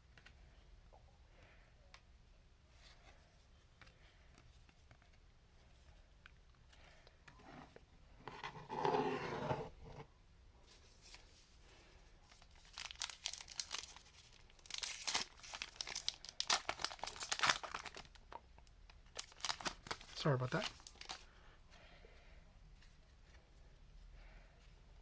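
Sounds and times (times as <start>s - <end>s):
foil wrapper crinkling and tearing: 12.3s - 21.2s.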